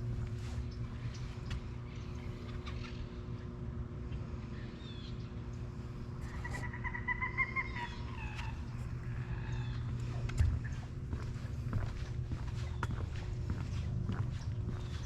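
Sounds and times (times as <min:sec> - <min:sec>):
bird drawn-out wavering call: 0:06.3 - 0:09.8
footsteps: 0:09.8 - 0:15.0.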